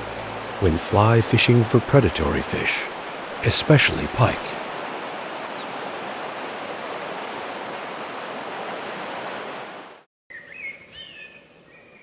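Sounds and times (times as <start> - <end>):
rushing river water: 0.0 - 10.1
bird chirps: 10.3 - 12.0.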